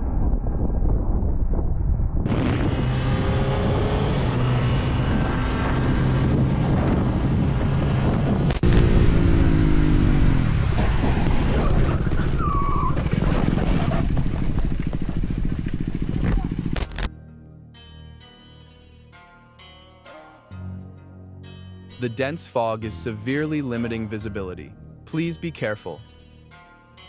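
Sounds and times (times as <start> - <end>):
wind rush on microphone: 0.0 - 16.8
motorcycle engine revving: 2.3 - 17.1.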